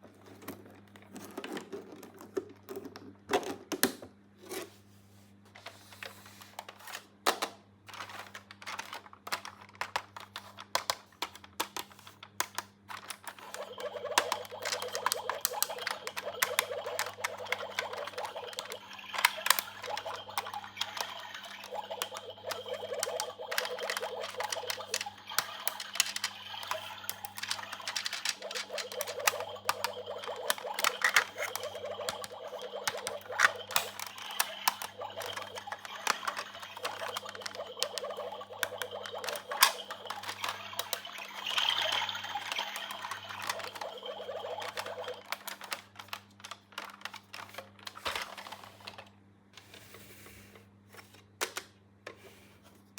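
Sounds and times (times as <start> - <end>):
plastic toy pieces clicking: 7.3 - 48.6.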